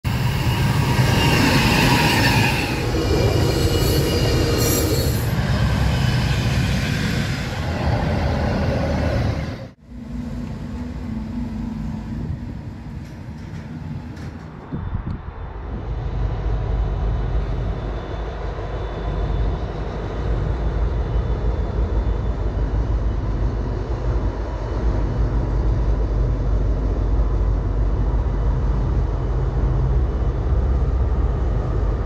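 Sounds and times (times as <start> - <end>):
diesel locomotive engine tone: 0.0 - 32.0
train rumbling: 0.0 - 32.0
train wheel squeal: 0.1 - 9.7, 16.7 - 24.6.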